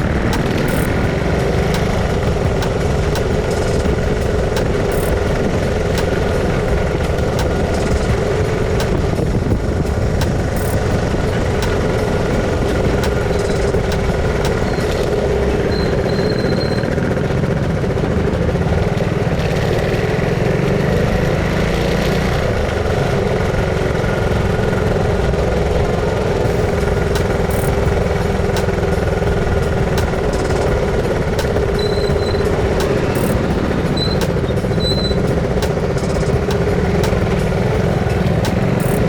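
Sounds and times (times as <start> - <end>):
motorcycle engine running: 0.0 - 39.0
wind rush on microphone: 0.0 - 39.0.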